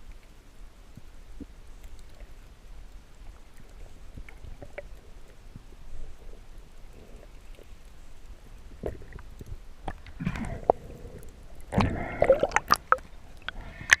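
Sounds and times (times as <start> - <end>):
muffled water sloshing and gurgling: 0.8 - 14.0
underwater clicks: 8.8 - 14.0.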